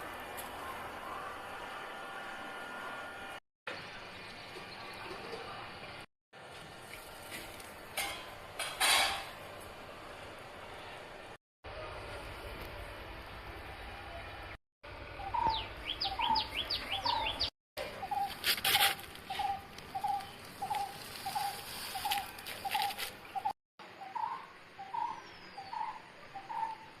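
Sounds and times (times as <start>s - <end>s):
high falling bird chirps: 15.2s - 18.4s, 19.3s - 27.0s.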